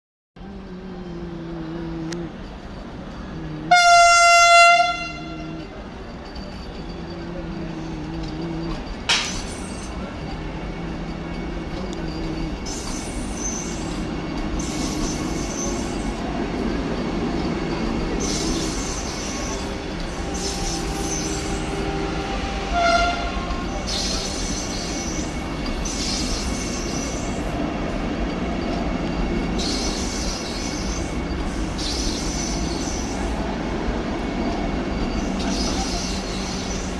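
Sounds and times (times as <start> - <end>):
train running: 0.4 - 36.9
train horn blast: 3.6 - 5.7, 18.3 - 24.1.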